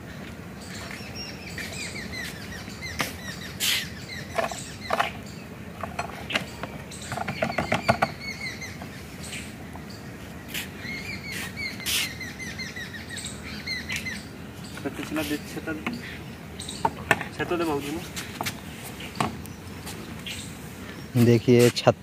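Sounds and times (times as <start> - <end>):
birds chirping: 0.0 - 22.0
sharp clicks and knocks: 5.8 - 8.2, 16.8 - 17.5.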